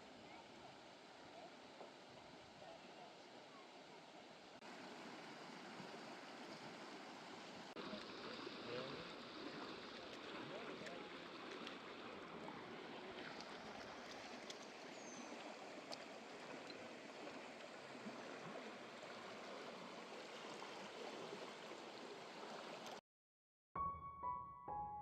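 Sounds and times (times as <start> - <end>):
flowing water: 0.0 - 23.0
piano music: 23.8 - 25.0.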